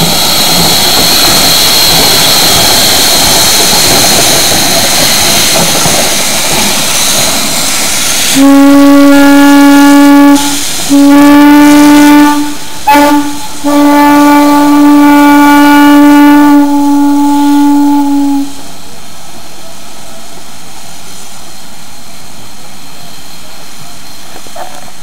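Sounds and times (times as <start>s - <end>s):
steam locomotive whistle blasts: 8.2s - 18.6s.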